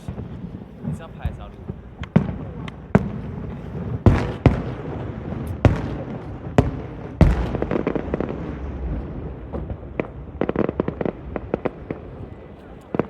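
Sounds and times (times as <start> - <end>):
fireworks short cracks: 0.0 - 8.8
fireworks bangs: 0.0 - 13.0
fireworks crackling: 0.0 - 13.0.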